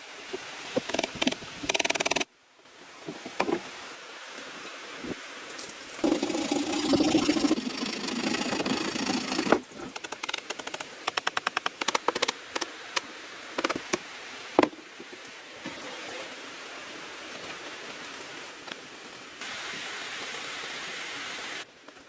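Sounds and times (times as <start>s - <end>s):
rasping scrape on bamboo: 5.9s - 10.9s
sharp taps on bamboo: 9.5s - 14.0s.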